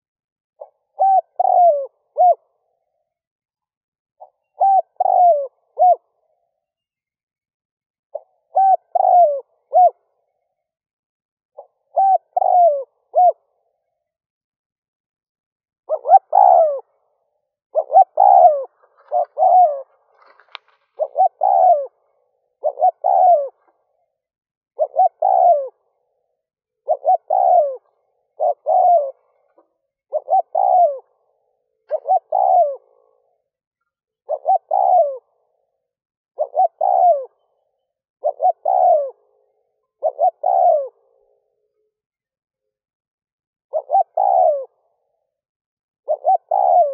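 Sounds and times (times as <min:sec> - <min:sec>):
dove cooing: 0:00.6 - 0:02.8, 0:04.2 - 0:06.5, 0:08.1 - 0:10.3, 0:11.6 - 0:13.8, 0:15.9 - 0:24.2, 0:24.8 - 0:33.6, 0:34.2 - 0:35.8, 0:36.4 - 0:41.7, 0:43.7 - 0:45.2, 0:46.1 - 0:46.9.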